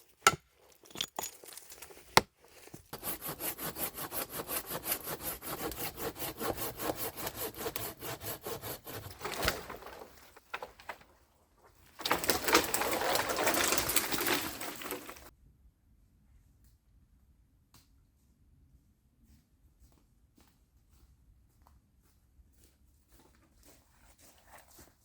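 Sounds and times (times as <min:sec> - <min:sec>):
hand saw cutting wood: 0:02.8 - 0:10.3, 0:12.0 - 0:15.3.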